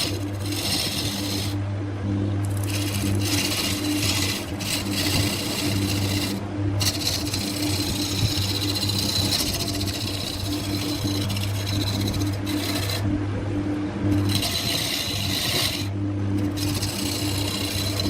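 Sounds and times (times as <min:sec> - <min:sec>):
turning tool cutting wood: 0:00.0 - 0:01.6, 0:02.4 - 0:13.1, 0:14.0 - 0:18.0
wood lathe motor hum: 0:00.0 - 0:18.0.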